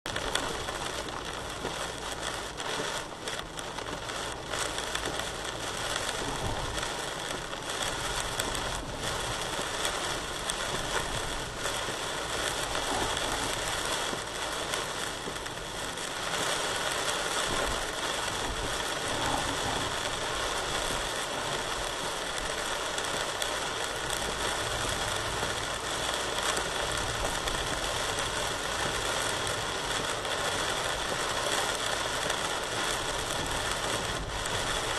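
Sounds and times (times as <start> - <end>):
heavy rain pouring: 0.1 - 34.9
low wind rumble: 17.4 - 30.1.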